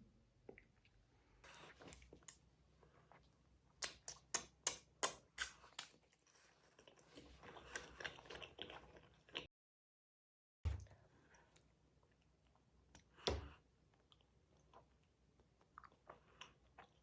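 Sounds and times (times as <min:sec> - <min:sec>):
gummy candy being chewed: 0:03.0 - 0:09.5.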